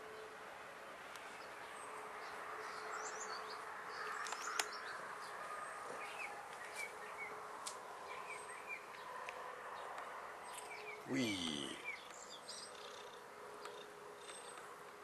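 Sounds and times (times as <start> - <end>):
small birds chirping: 1.2 - 7.4, 9.8 - 14.8.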